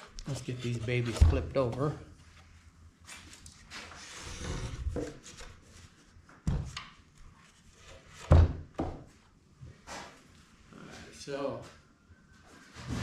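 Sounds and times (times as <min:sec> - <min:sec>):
wooden doors thumping down: 0:08.3 - 0:09.0.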